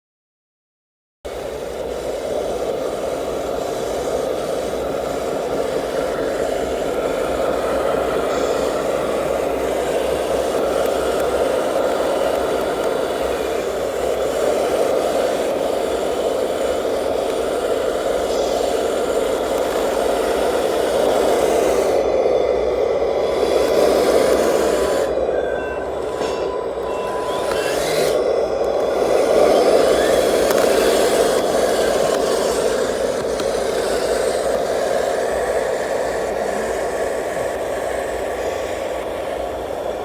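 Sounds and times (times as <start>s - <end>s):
toy truck electric motor rattling: 1.3s - 40.0s.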